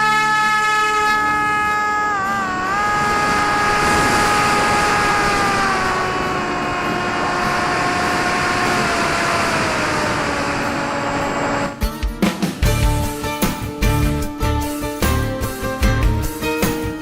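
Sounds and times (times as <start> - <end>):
model plane motor whining: 0.0 - 11.8
wind noise on microphone: 0.5 - 11.8.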